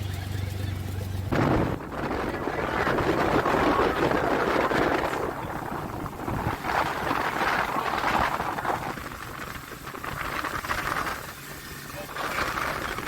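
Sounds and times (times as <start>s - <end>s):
boat and water noise: 0.0s - 13.0s
wind buffeting microphone: 0.0s - 13.0s.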